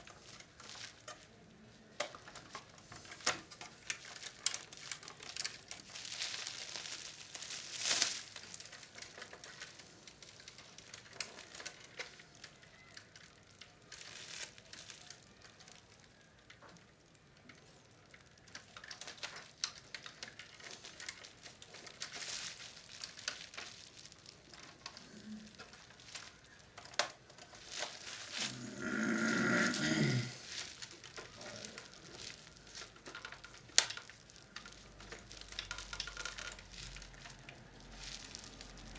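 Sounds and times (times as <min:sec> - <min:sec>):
hands handling plastic parts: 0:16.4 - 0:29.1, 0:30.4 - 0:38.9.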